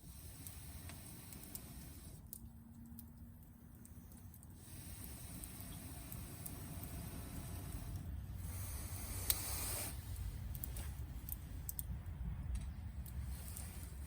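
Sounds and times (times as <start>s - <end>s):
campfire crackling and popping: 0.0s - 14.0s
low steady rumble: 0.0s - 14.0s
hissing rush: 4.6s - 10.5s.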